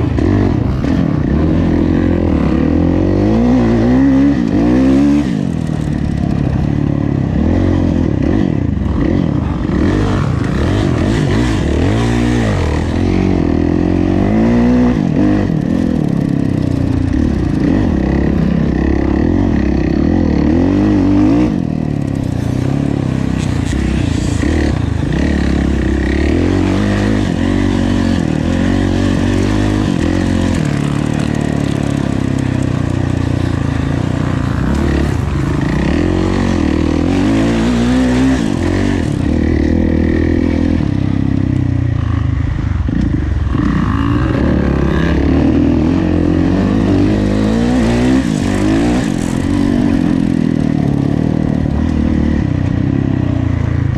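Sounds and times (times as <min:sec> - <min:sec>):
motocross bike engine revving: 0:00.0 - 0:52.6.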